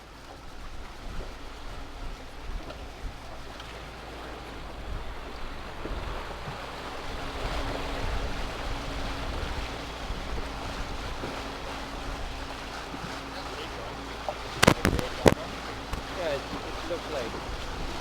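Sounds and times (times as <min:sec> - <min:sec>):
boat engine hum: 0:00.0 - 0:18.0
water washing: 0:00.6 - 0:18.0
wind buffeting microphone: 0:04.6 - 0:18.0.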